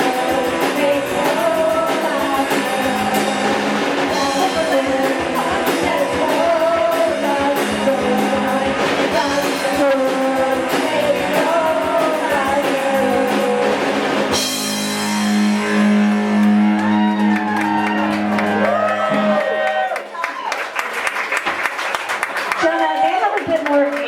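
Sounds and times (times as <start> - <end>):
sung vocals: 0.0 - 14.5
drum kit beat: 0.0 - 19.6
electric guitar: 0.0 - 19.8.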